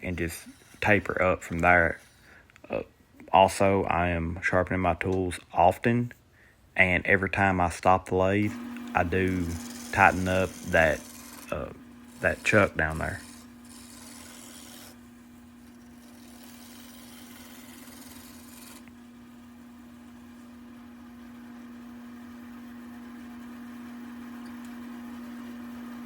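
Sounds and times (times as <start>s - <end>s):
wood lathe humming: 0.0s - 2.8s, 8.4s - 26.0s.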